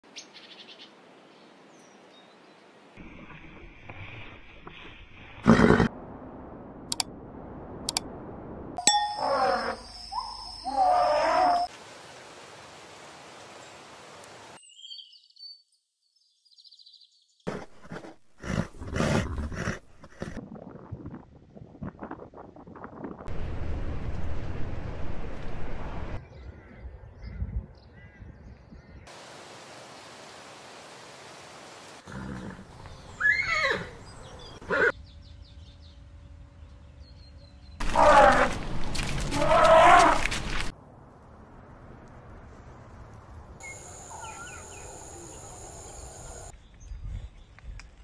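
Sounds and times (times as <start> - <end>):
horses making rough vocal sounds: 5.4 - 5.9, 17.5 - 20.8, 32.0 - 32.8, 37.8 - 40.6
faint high chirping: 8.8 - 11.7, 43.6 - 47.6
outdoor hiss: 11.7 - 14.6, 29.1 - 33.8, 43.6 - 46.6
horse whinnying: 33.2 - 34.0.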